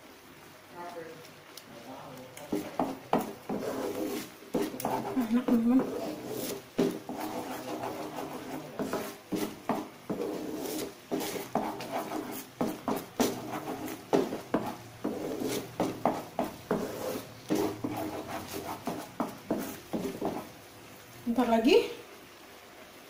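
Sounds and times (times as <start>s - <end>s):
thick sauce boiling in a pan: 0.0s - 23.0s.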